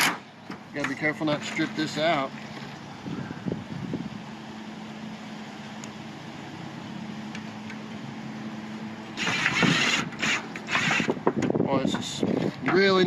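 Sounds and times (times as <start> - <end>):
steady low hum: 0.2 - 12.5
power drill grinding into metal: 9.2 - 11.2.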